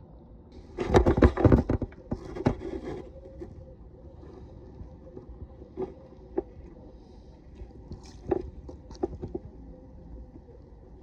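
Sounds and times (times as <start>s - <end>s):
low rumbling background: 0.0s - 1.1s, 3.0s - 11.0s
light water sounds: 3.9s - 11.0s.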